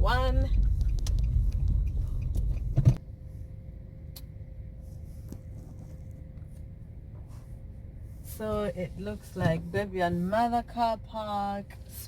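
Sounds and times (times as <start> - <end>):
engine and road rumble: 0.0 - 12.0
low hum with steady tone: 0.0 - 12.0
light ticks: 0.4 - 2.7.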